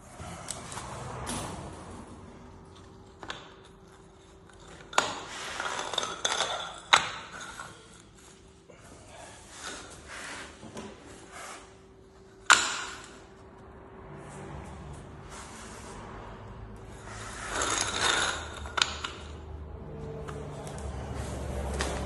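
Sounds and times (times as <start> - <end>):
rustling scrape: 7.8 - 11.8, 15.2 - 19.0.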